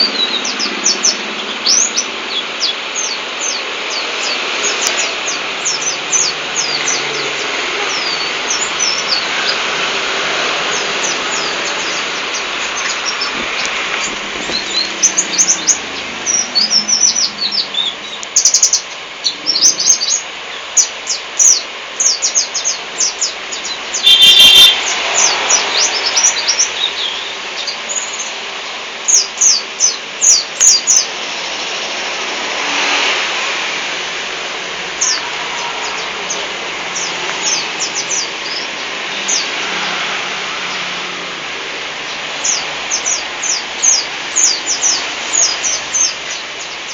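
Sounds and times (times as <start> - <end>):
bird chirping and twittering: 0.0 - 28.4, 29.0 - 31.9, 34.9 - 41.3, 42.0 - 46.9
background hiss: 0.0 - 46.9.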